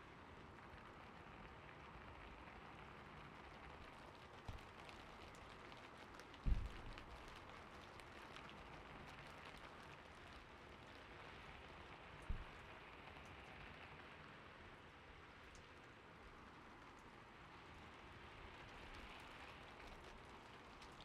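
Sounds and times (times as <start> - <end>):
gentle rain: 0.0 - 21.0
low thump: 6.4 - 6.9, 12.3 - 12.5.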